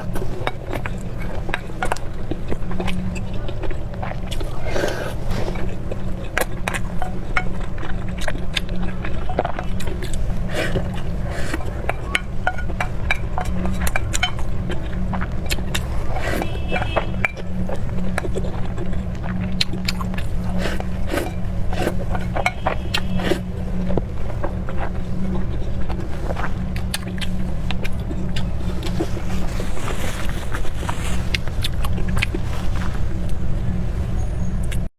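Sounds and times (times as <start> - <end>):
chopsticks and tableware clicking: 0.0 - 25.6
chewing noises: 0.0 - 34.9
steady low rumble: 0.0 - 34.9.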